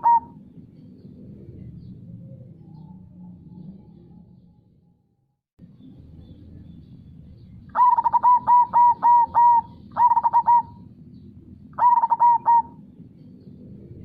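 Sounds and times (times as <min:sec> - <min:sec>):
dove cooing: 0:00.0 - 0:00.5, 0:07.7 - 0:10.9, 0:11.8 - 0:12.9.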